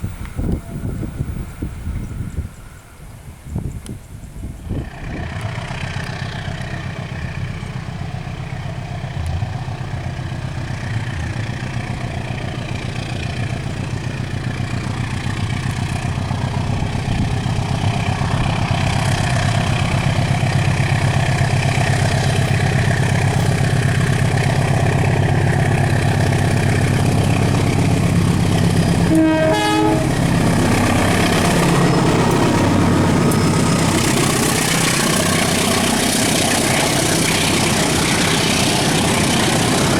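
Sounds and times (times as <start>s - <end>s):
train engine drone: 0.0s - 39.9s
train horn blast: 27.3s - 32.9s.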